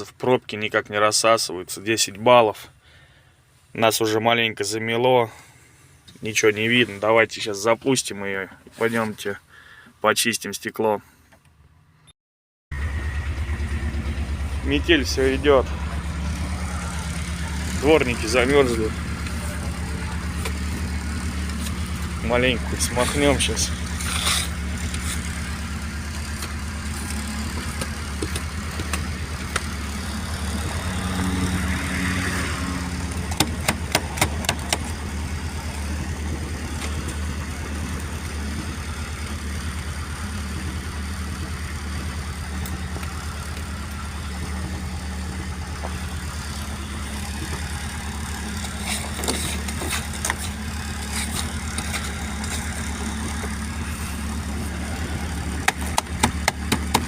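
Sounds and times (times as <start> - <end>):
van engine idling: 12.8 - 57.0
sharp clicks and knocks: 26.3 - 29.7, 33.2 - 35.0, 55.5 - 57.0.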